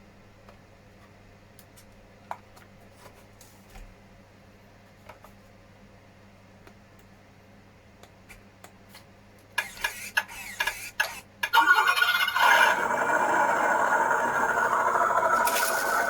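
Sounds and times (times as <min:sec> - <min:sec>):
rc truck motor running: 0:09.6 - 0:16.0.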